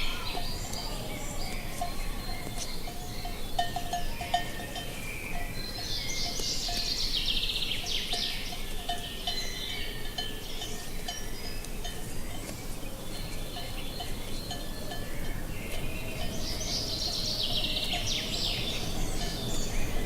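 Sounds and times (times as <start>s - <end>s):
low wind rumble: 0.0s - 20.0s
songbirds singing: 0.0s - 20.0s
cattle bells clanking: 1.8s - 7.1s, 7.8s - 12.4s.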